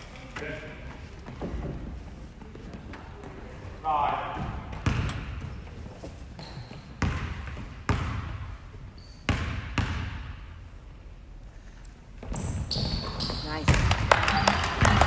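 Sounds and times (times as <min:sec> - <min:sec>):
basketball bouncing on gym floor: 0:04.3 - 0:05.8, 0:06.4 - 0:08.6, 0:09.3 - 0:10.6, 0:12.2 - 0:15.0.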